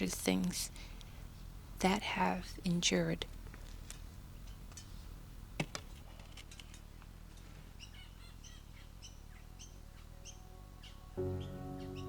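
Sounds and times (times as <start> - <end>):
small birds chirping: 7.4 - 12.0.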